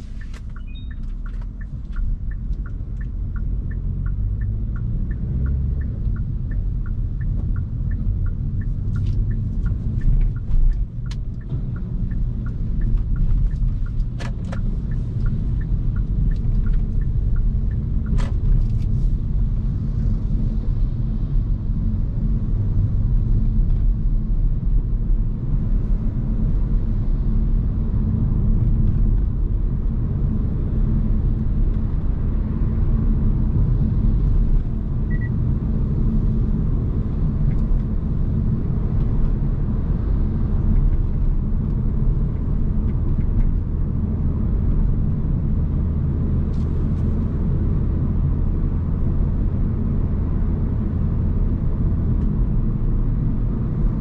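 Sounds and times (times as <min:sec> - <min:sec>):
road and tyre rumble: 0:00.0 - 0:54.0
light regular ticking: 0:00.1 - 0:18.6.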